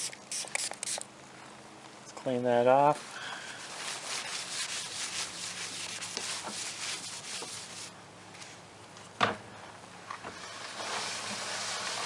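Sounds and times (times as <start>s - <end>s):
cloth rubbing car panel: 3.6s - 7.9s.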